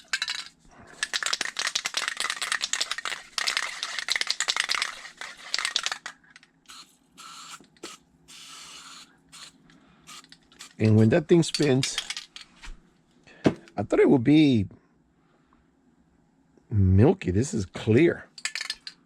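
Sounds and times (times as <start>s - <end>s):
aerosol can spraying: 6.7s - 11.0s.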